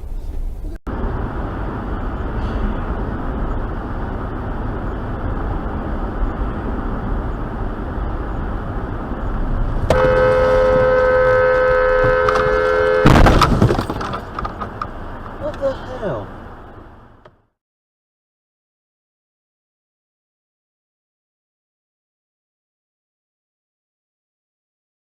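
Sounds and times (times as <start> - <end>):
vehicle road noise: 0.0 - 17.6
car horn blast: 9.8 - 13.9
loud collision impact: 9.8 - 14.7.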